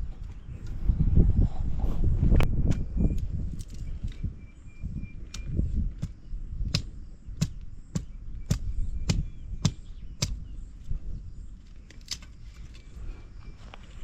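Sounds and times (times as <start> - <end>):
axe chopping wood: 5.4 - 10.4.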